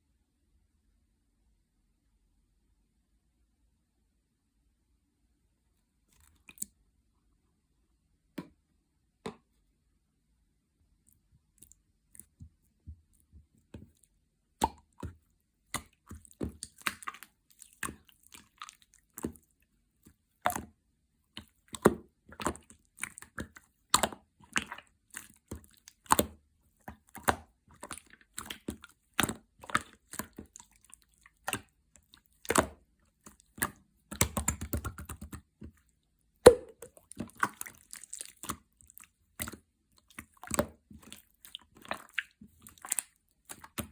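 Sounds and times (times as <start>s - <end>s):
wet slime squishes: 6.0s - 6.9s, 10.9s - 43.9s
slime popping and clicking: 32.4s - 35.4s.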